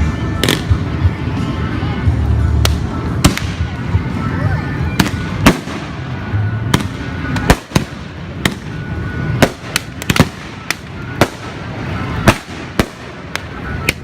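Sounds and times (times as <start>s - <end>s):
fireworks bangs and cracks: 2.6s - 4.2s, 4.9s - 14.0s.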